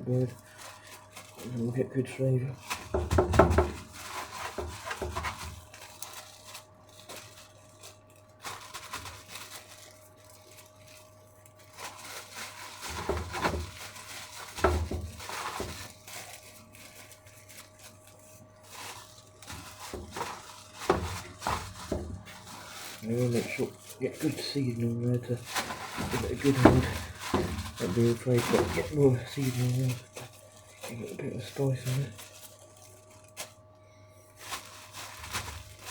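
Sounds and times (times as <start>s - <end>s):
faint steady hum: 0.0s - 35.9s
hands rubbing raw chicken: 9.8s - 32.8s.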